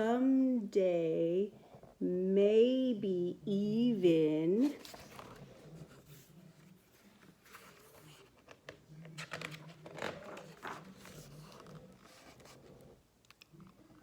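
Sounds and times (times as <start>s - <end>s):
paper pages rustling: 4.6s - 13.0s.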